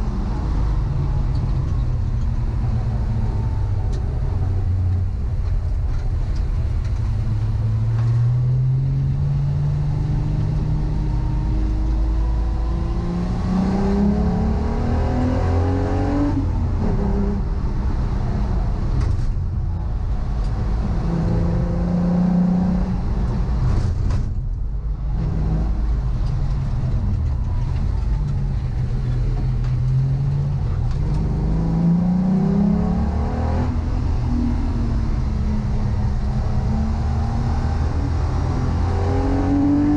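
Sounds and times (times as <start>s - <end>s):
race car engine accelerating: 28.9s - 39.9s.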